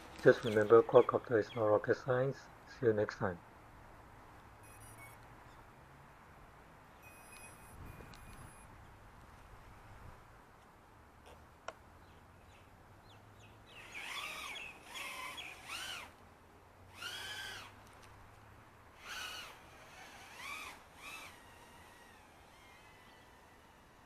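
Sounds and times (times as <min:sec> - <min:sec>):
bird calling: 0:12.5 - 0:15.9.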